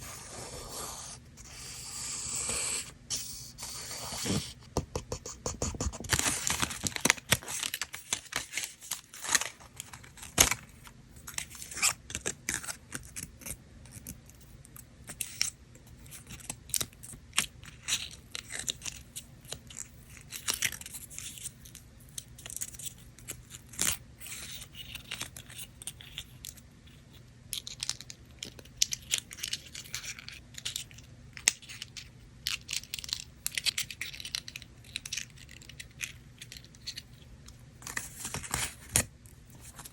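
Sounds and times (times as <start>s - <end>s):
paper crinkling and tearing: 5.7s - 10.7s.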